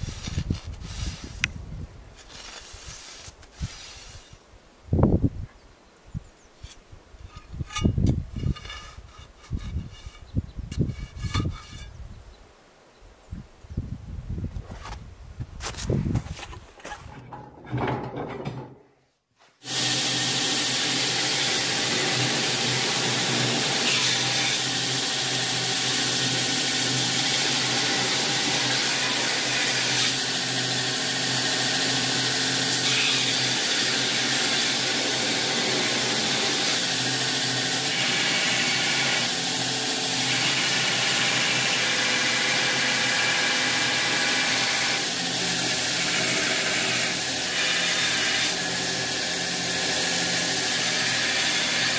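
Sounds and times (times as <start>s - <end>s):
hiss: 2.7s - 4.4s.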